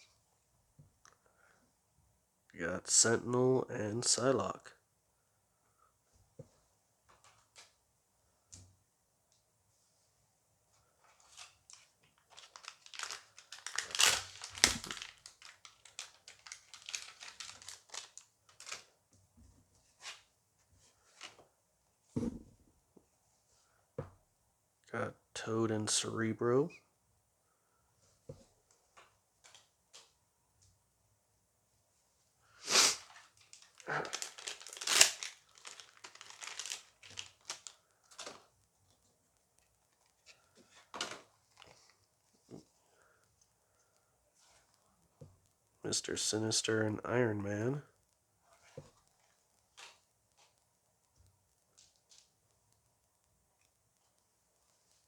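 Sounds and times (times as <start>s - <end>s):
wrapper crinkling and tearing: 11.2s - 18.9s, 32.9s - 38.4s.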